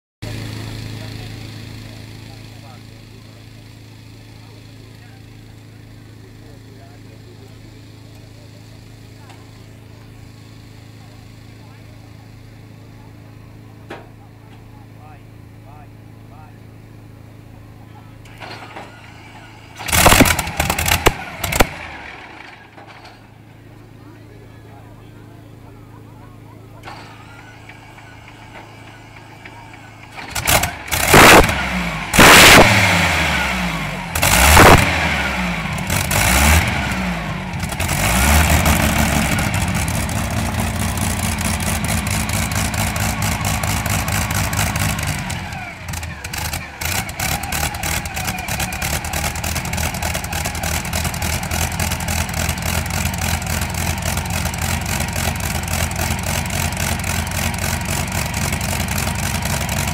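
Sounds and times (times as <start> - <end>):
engine idling: 0.2 - 59.9
engine starting and revving: 18.2 - 23.4, 26.8 - 59.9.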